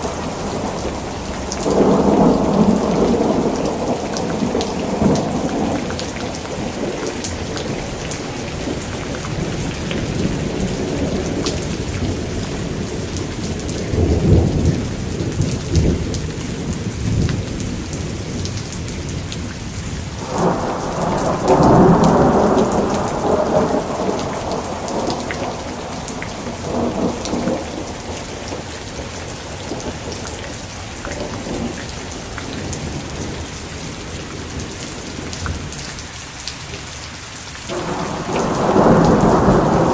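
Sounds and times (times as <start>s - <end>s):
thunder rolling: 0.0s - 13.0s, 20.2s - 30.2s, 37.7s - 39.9s
steady rain: 0.0s - 39.9s.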